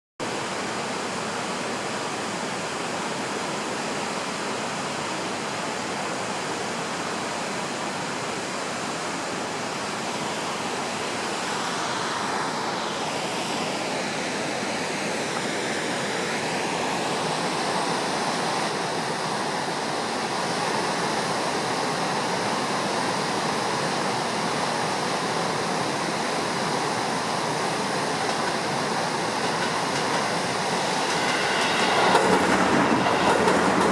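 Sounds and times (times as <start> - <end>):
river rushing: 0.2 - 33.9
faint sweeping tone: 30.3 - 33.9.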